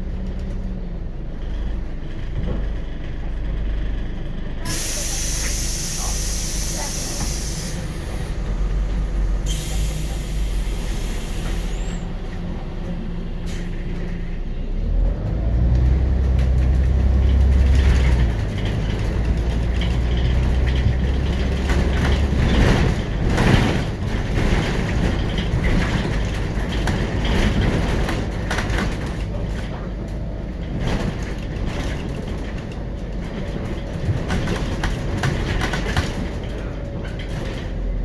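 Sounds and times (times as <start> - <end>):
bus diesel engine pulling: 0.0 - 38.0
rattling road noise: 0.0 - 38.0
air brakes hissing: 4.6 - 8.5, 9.4 - 12.2, 13.4 - 13.9.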